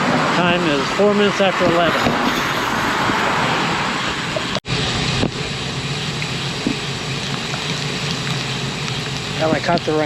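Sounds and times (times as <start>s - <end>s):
wind rush: 1.4s - 4.6s
bicycle tyre noise: 1.7s - 4.5s.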